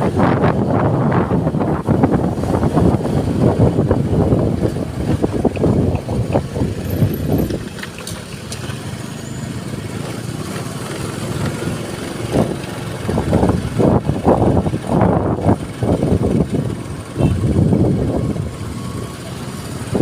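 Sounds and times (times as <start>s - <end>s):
wind buffeting microphone: 0.0s - 8.0s, 11.4s - 19.0s
vehicle road noise: 0.0s - 20.0s.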